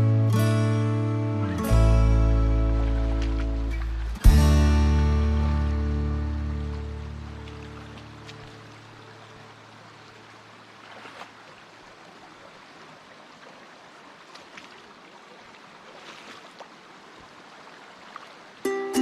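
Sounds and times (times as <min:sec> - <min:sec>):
background music: 0:00.0 - 0:08.3, 0:18.7 - 0:19.0
water rushing: 0:01.2 - 0:19.0.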